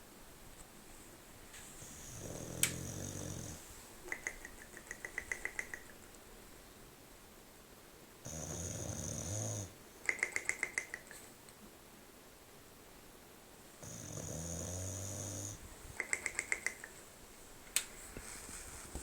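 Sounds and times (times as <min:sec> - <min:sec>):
dog snoring loudly: 0:01.8 - 0:03.6, 0:08.2 - 0:09.8, 0:13.8 - 0:15.6.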